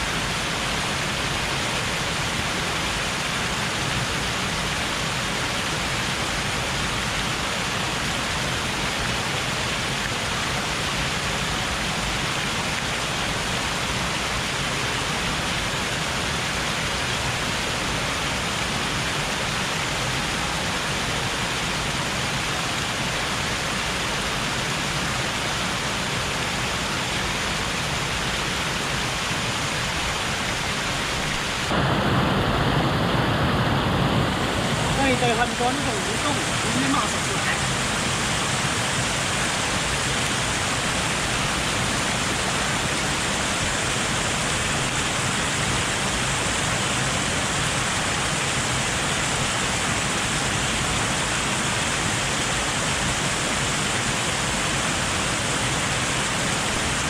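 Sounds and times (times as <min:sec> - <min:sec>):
flood water pouring over dam: 0:00.0 - 0:57.0.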